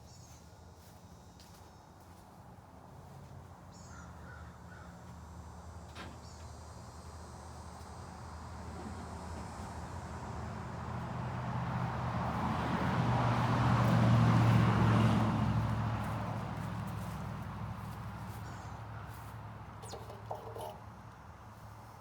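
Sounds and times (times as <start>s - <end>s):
vehicle passing by: 8.6s - 19.6s.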